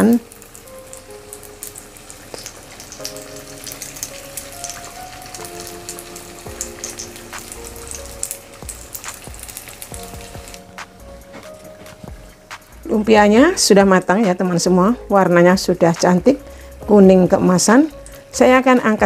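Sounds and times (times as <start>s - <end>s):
oil crackling and popping: 0.0s - 12.9s, 17.8s - 18.4s
soft background music: 0.0s - 19.0s
spring rolls sizzling in hot oil: 0.0s - 19.0s.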